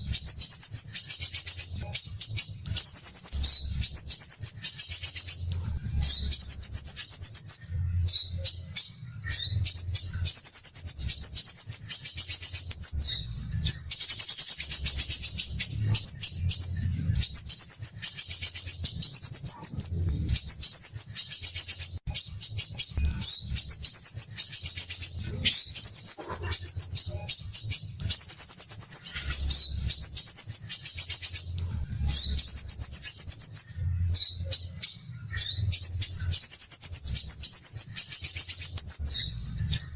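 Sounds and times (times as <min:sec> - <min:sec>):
bird singing harsh high trills: 0:00.0 - 0:39.9.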